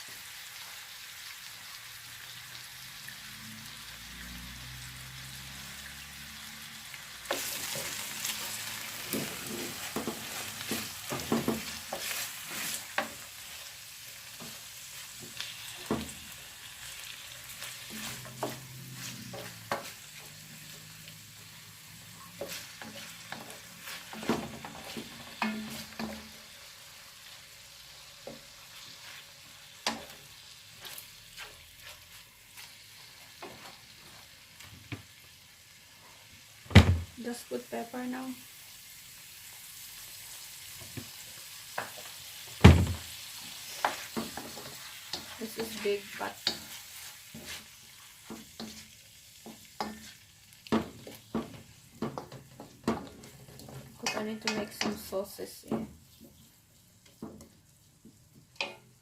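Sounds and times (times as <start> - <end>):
food sizzling in a pan: 0.0 - 59.0
utensil scraping a pan: 7.3 - 13.5, 17.4 - 21.0, 22.1 - 26.3, 30.8 - 32.7, 43.5 - 50.2.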